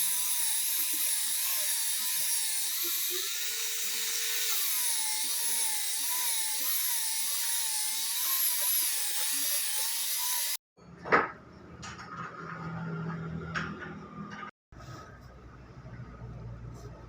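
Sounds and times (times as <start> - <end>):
power tool whining on wood: 0.0 - 10.6.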